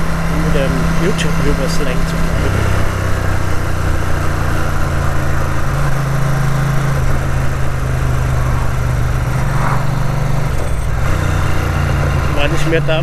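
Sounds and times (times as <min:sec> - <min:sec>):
motorcycle engine running: 0:00.0 - 0:13.0
wind rush: 0:07.0 - 0:11.1.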